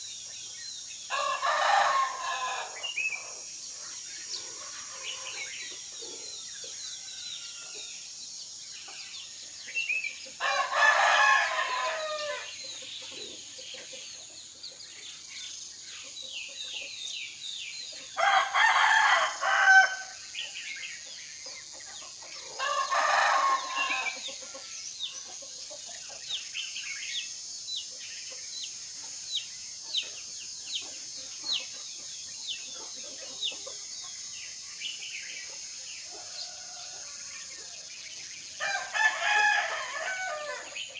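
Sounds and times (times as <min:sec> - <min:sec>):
small birds chirping: 0:00.0 - 0:40.9
rooster crowing: 0:01.1 - 0:03.0, 0:10.4 - 0:12.5, 0:18.2 - 0:20.2, 0:22.6 - 0:24.2, 0:36.1 - 0:37.2, 0:38.6 - 0:40.8.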